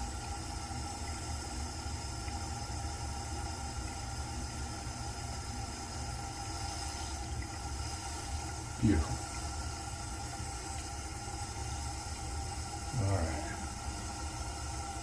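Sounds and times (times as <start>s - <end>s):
constant hiss: 0.0s - 15.0s.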